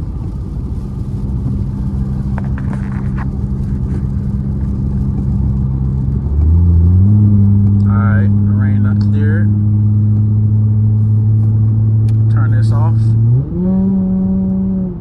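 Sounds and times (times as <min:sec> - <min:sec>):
car engine hum: 0:00.0 - 0:15.0
road noise inside car: 0:00.0 - 0:15.0.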